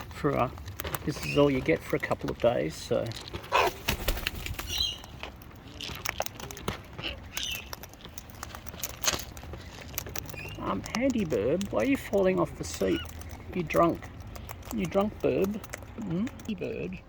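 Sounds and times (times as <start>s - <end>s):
clicks and rustles: 0.0s - 17.0s
cockatoos flapping wings: 3.5s - 5.0s.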